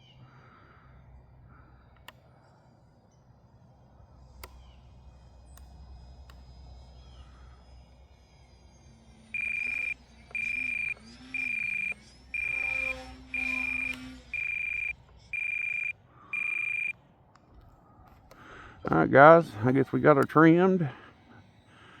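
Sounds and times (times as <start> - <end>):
electronic alarm beeping: 9.3 - 17.0
electric motor rising and falling: 9.4 - 16.9.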